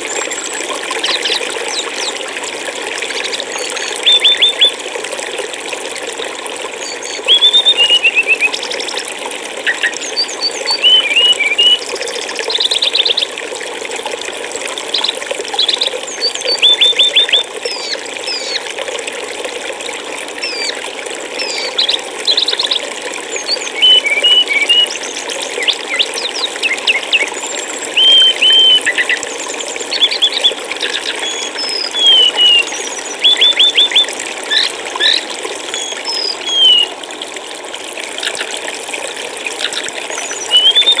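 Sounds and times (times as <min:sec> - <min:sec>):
flowing water rushing: 0:00.0 - 0:41.0
songbirds calling: 0:03.1 - 0:04.8, 0:06.8 - 0:13.3, 0:14.9 - 0:18.7, 0:21.4 - 0:37.0, 0:39.4 - 0:41.0.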